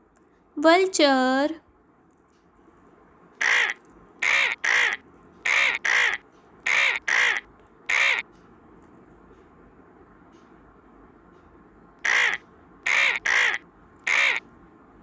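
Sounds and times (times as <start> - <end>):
harsh cawing bird calls: 3.4 - 8.2, 12.0 - 14.4.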